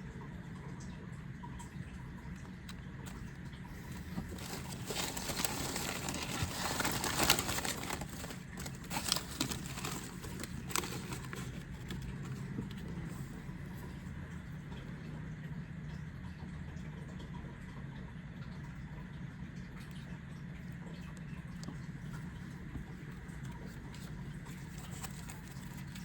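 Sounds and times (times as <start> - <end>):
cards rustling: 3.7 - 12.5, 23.7 - 26.0
foil pack crinkling: 3.7 - 12.8, 23.5 - 26.0.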